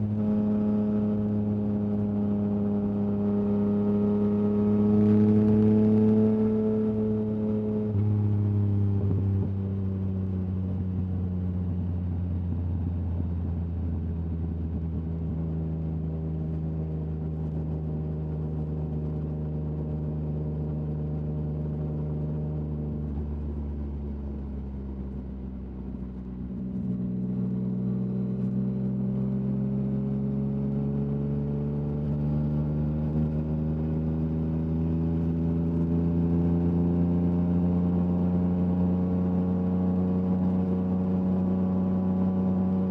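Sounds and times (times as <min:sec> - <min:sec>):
motorcycle engine: 0:00.0 - 0:20.0.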